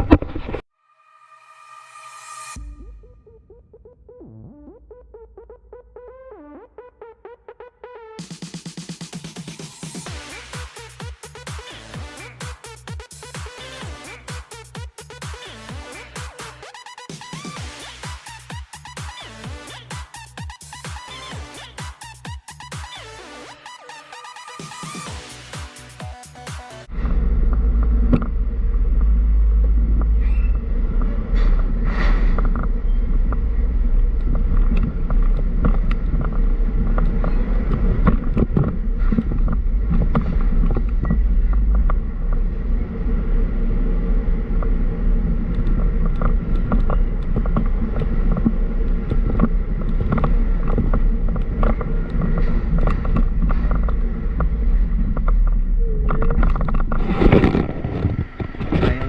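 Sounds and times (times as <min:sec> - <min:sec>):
truck engine and road noise: 0:24.7 - 0:59.0
knocks and rattles: 0:45.6 - 0:59.0.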